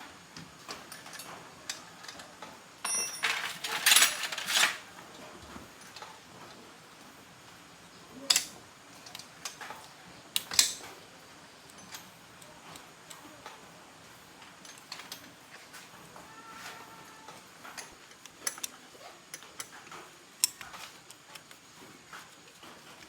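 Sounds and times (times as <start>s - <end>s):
metal tools clinking and scraping: 2.8s - 4.9s.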